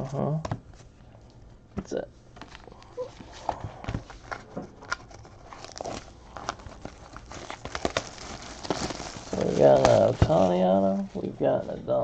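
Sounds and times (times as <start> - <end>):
cards and wrappers handled: 2.4 - 11.1.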